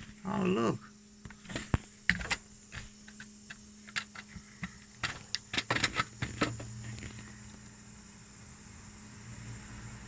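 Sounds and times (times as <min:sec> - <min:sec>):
faint steady hum: 0:00.0 - 0:10.0
hands handling engine parts: 0:01.2 - 0:07.3.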